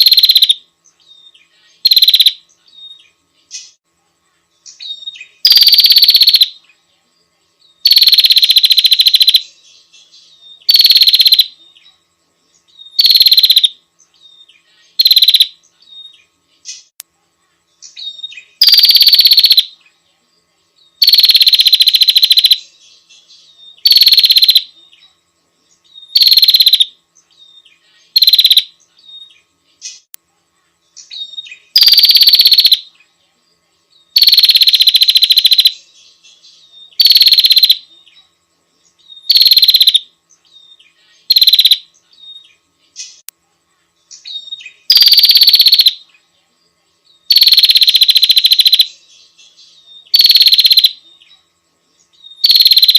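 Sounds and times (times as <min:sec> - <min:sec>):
bird buzzy rattle call: 0:00.0 - 0:00.6, 0:01.8 - 0:02.4, 0:05.2 - 0:06.6, 0:07.8 - 0:09.5, 0:10.7 - 0:11.6, 0:13.0 - 0:13.8, 0:15.0 - 0:15.6, 0:18.6 - 0:19.8, 0:21.0 - 0:22.6, 0:23.8 - 0:24.7, 0:26.1 - 0:27.0, 0:28.1 - 0:28.7, 0:31.3 - 0:32.9, 0:34.2 - 0:35.8, 0:36.9 - 0:37.9, 0:39.2 - 0:40.1, 0:41.2 - 0:41.9, 0:44.4 - 0:46.0, 0:47.3 - 0:49.0, 0:50.1 - 0:51.0, 0:52.4 - 0:52.9.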